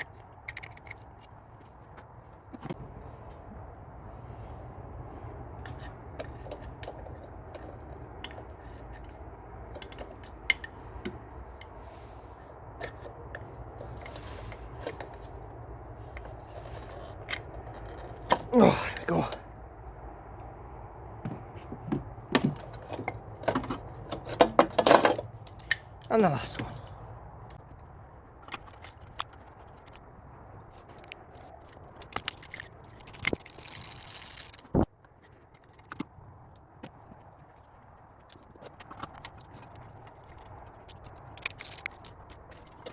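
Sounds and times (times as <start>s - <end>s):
clicks and scrapes of hand tools: 5.6s - 11.8s, 38.2s - 42.9s.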